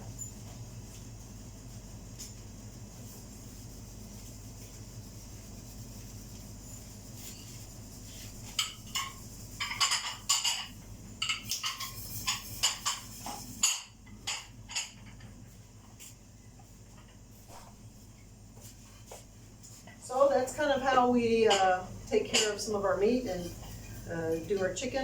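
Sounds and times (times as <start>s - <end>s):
steady low hum: 0.0s - 25.0s
dishes clattering: 8.6s - 15.3s, 21.5s - 22.7s.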